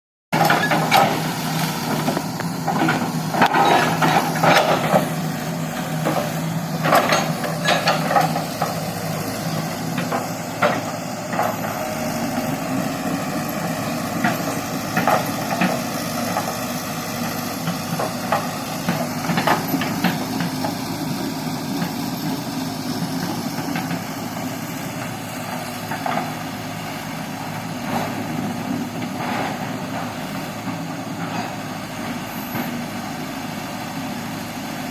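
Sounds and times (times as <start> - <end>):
excavator diesel engine running: 0.3 - 34.9
metal clanks and knocks: 2.6 - 5.2, 6.0 - 8.8.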